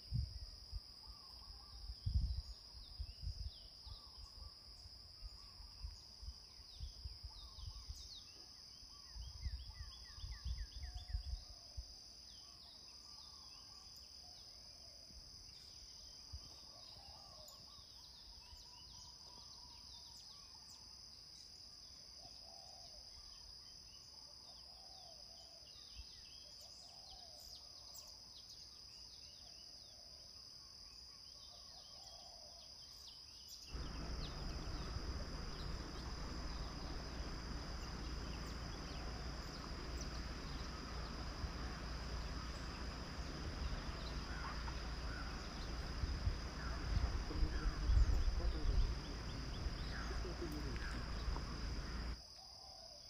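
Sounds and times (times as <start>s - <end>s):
insects droning: 0.0s - 53.0s
wind rumbling on microphone: 1.9s - 3.6s, 33.8s - 52.2s
bird chirps and calls: 33.7s - 52.2s.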